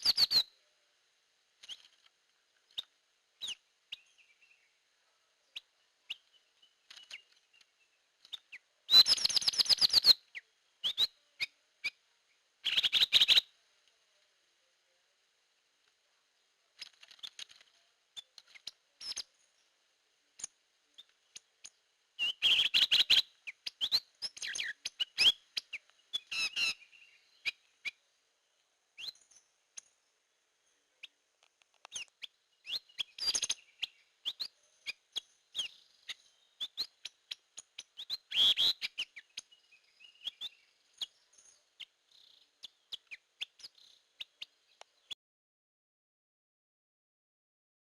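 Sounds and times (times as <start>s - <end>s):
bird song with chirps and whistles: 0.0s - 0.6s, 1.6s - 2.0s, 2.7s - 4.8s, 5.5s - 13.5s, 16.8s - 19.8s, 20.4s - 28.0s, 29.0s - 30.0s, 31.8s - 45.2s.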